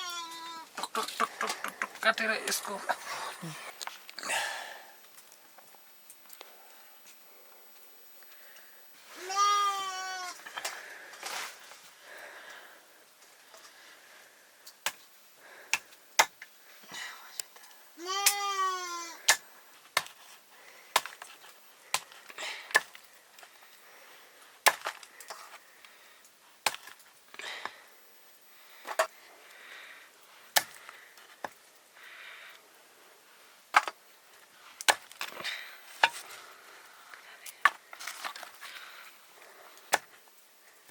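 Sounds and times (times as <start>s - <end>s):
sheep bleating: 9.2s - 10.4s, 18.0s - 19.2s
blade chopping wood: 24.7s - 25.0s.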